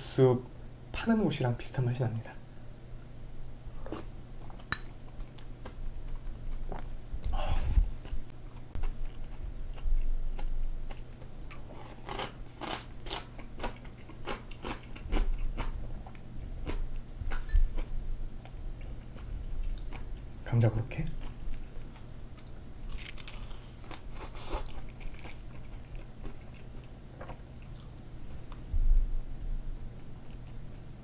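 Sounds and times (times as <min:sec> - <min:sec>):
chewing noodles: 0:21.2 - 0:28.6
crunchy bites and chewing: 0:22.8 - 0:27.9
low hum: 0:27.7 - 0:31.0.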